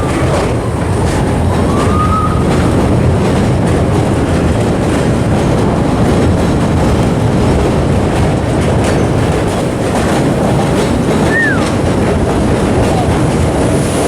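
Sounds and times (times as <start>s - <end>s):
subway train rumbling on track: 0.0s - 14.0s
high wheel squeal: 9.0s - 11.9s.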